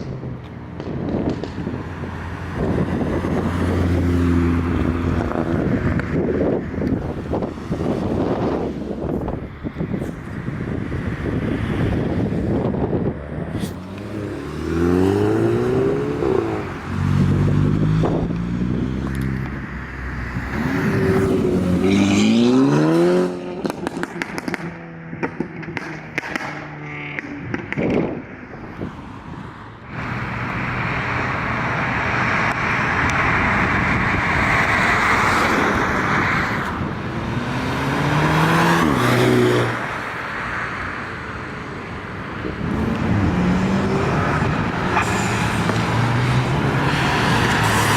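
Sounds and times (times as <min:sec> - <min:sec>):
cars accelerating hard: 0:10.5 - 0:28.4, 0:29.9 - 0:47.9.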